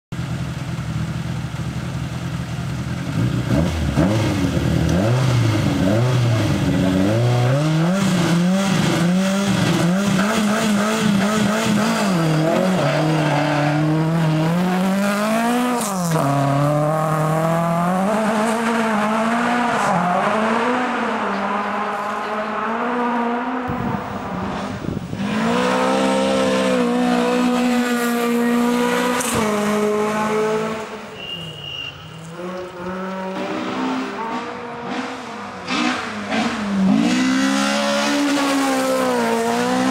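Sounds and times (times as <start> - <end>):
rally car engine revving: 2.8 - 39.9.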